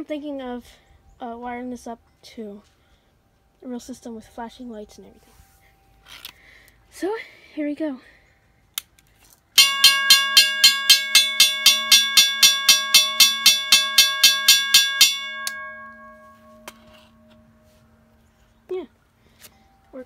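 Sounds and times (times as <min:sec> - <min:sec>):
railroad crossing bell ringing: 0:09.6 - 0:18.1.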